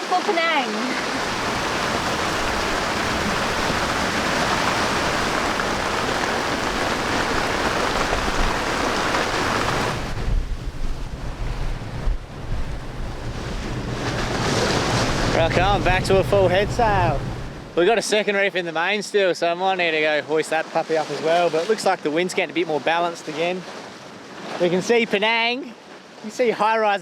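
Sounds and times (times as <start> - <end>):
rain and wind hiss: 0.0 - 17.8
wind rumbling on microphone: 1.0 - 17.7.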